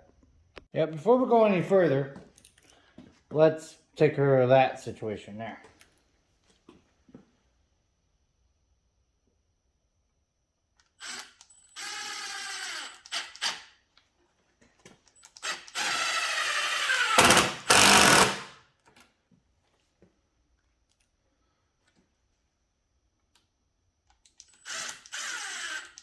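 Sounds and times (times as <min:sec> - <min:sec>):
power drill whining: 0:11.0 - 0:13.7, 0:15.2 - 0:18.6, 0:24.4 - 0:26.0.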